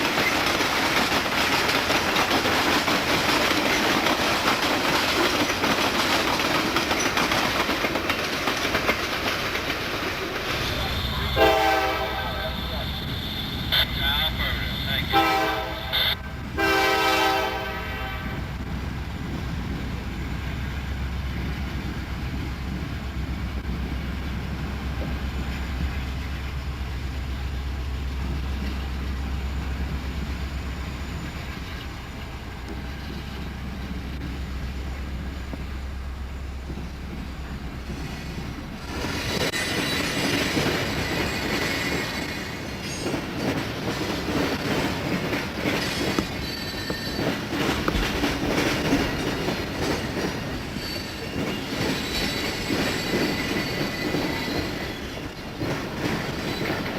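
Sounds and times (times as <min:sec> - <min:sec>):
wheels on rails: 0:00.0 - 0:11.5, 0:18.6 - 0:56.9
train horn: 0:10.7 - 0:18.5.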